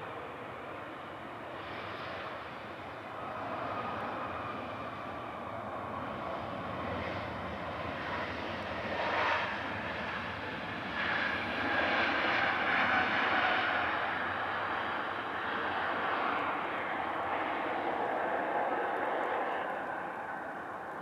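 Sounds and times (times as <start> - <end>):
jet engines whining: 0.0 - 21.0.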